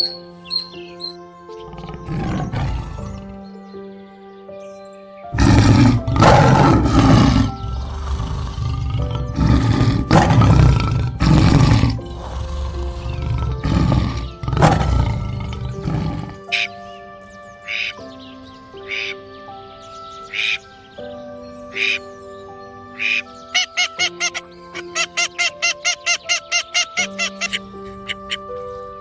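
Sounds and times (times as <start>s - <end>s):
background music: 0.0s - 29.0s
large animal roaring: 1.7s - 3.4s, 5.4s - 16.5s.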